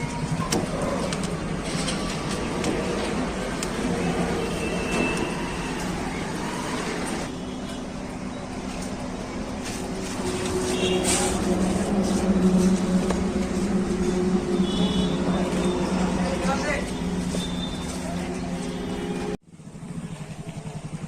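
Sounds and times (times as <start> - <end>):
tractor diesel engine running: 8.0 - 21.0.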